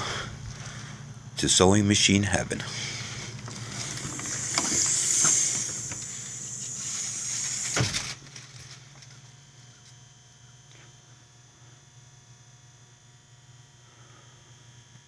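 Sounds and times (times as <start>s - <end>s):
steady hissing noise: 0.0s - 9.3s
low hum: 0.0s - 10.6s.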